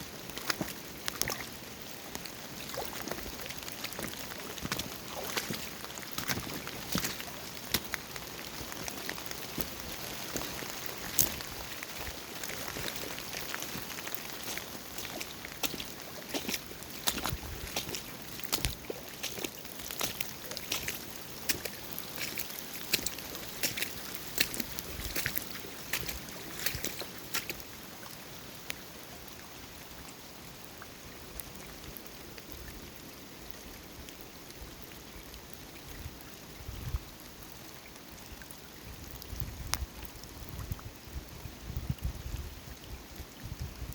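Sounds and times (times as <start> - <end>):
running water: 0.0 - 33.9
small sharp splashes: 0.2 - 27.6.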